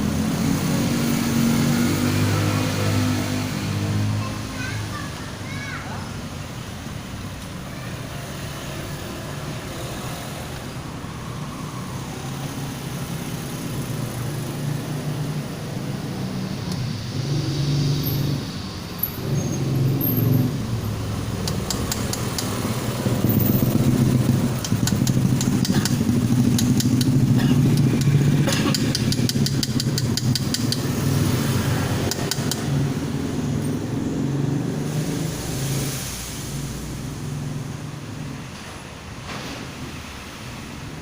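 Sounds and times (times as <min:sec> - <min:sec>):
engine running unevenly: 0:09.6 - 0:35.9
rapid clicking: 0:24.5 - 0:30.9.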